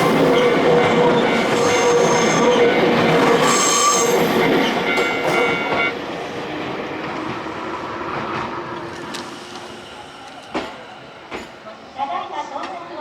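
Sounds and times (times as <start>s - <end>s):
train wheels squealing: 0.0s - 5.9s
train rumbling past: 0.0s - 13.0s.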